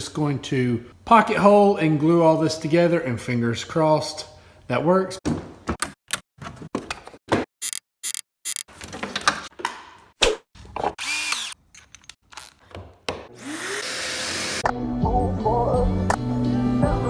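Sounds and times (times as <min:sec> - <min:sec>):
cordless drill driving screws: 0:11.0 - 0:11.6, 0:13.4 - 0:14.6.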